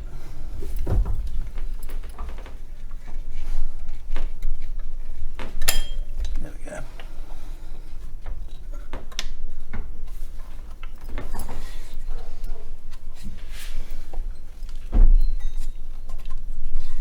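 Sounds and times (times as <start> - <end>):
tools and metal parts knocking: 5.6 - 6.4.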